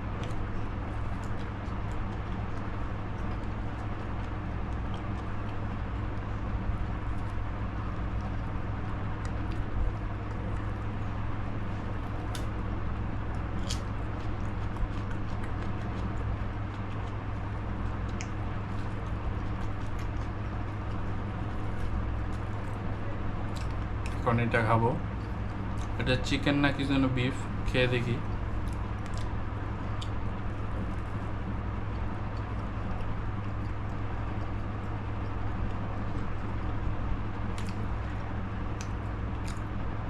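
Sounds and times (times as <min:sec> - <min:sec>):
steady low hum: 0:00.0 - 0:40.0
small clicks and crackles: 0:00.2 - 0:24.2
person chewing: 0:08.0 - 0:24.2, 0:37.4 - 0:39.8.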